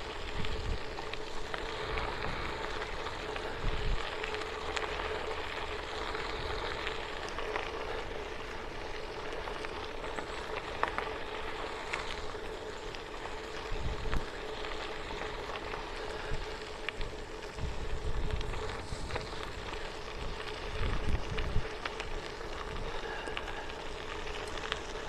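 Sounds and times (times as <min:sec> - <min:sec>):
bicycle tyres rolling on trail: 0:00.0 - 0:25.0
small ticks and rattles: 0:00.0 - 0:25.0
wind buffeting microphone: 0:00.1 - 0:04.7, 0:13.6 - 0:15.2, 0:16.0 - 0:23.4.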